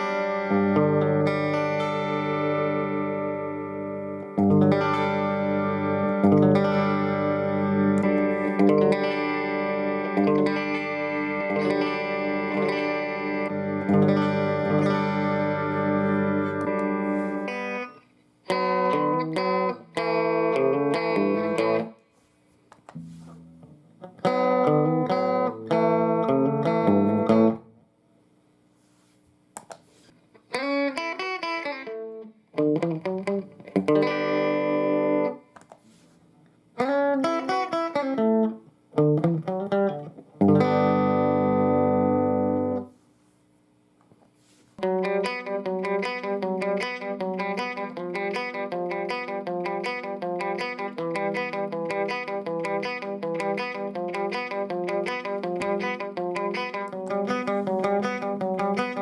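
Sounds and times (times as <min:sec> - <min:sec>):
electric guitar chords and notes: 0:00.0 - 0:22.1, 0:22.8 - 0:27.8, 0:29.6 - 0:43.0, 0:44.8 - 0:59.0.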